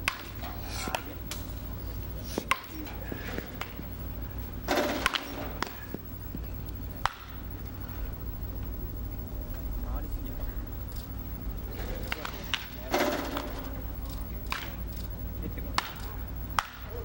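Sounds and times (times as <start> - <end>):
wooden bat cracks: 0.0 - 1.5, 4.7 - 5.8, 7.0 - 7.4, 14.4 - 14.9, 15.7 - 16.9.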